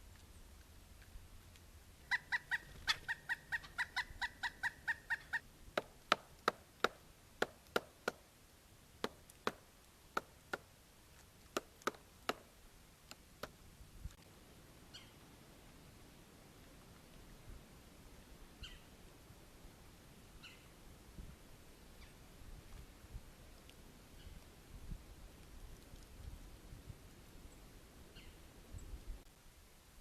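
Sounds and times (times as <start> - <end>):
woodpecker calling: 2.0 - 8.2, 11.5 - 12.5, 14.9 - 15.2, 18.6 - 18.9, 20.4 - 20.7, 28.1 - 28.4
woodpecker pecking bark: 2.1 - 8.3, 9.0 - 10.7, 11.4 - 13.6.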